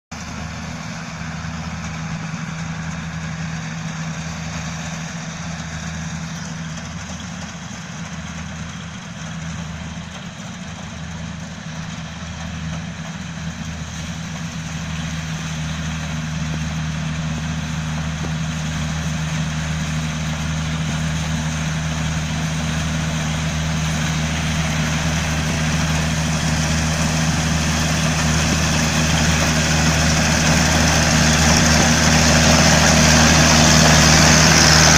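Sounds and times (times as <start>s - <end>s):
combine harvester engine running: 0.1s - 34.9s
harvesting machinery clatter: 0.2s - 34.9s.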